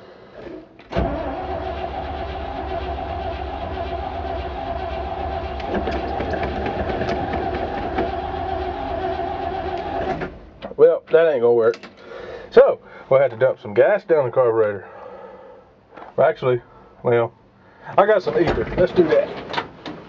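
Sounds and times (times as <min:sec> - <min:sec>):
starter cranking engine: 0:00.9 - 0:10.3.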